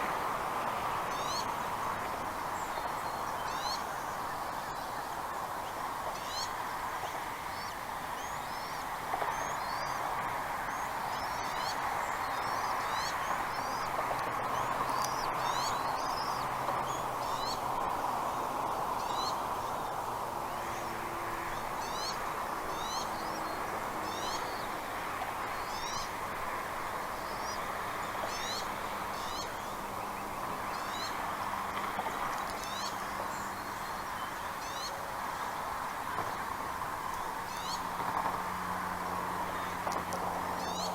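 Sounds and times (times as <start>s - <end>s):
steady background hiss: 0.0s - 40.9s.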